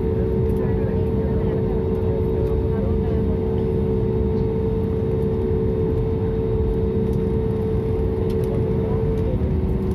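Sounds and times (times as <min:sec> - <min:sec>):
airliner cabin rumble: 0:00.0 - 0:09.9
constant hum: 0:00.0 - 0:09.9.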